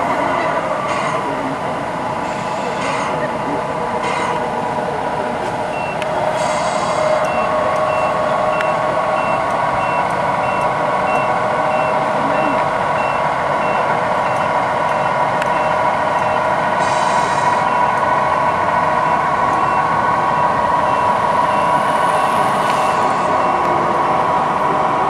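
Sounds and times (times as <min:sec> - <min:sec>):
model truck engine drone: 0:00.0 - 0:25.0
reversing beeper: 0:05.7 - 0:24.0.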